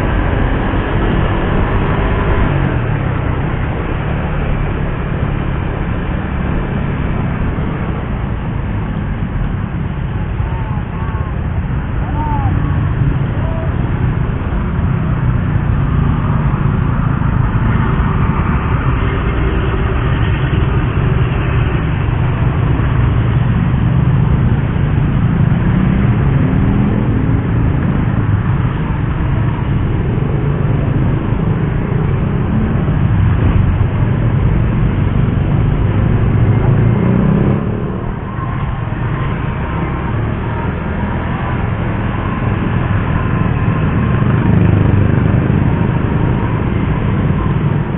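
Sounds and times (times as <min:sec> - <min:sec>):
motorcycle engine revving: 0:24.0 - 0:47.9.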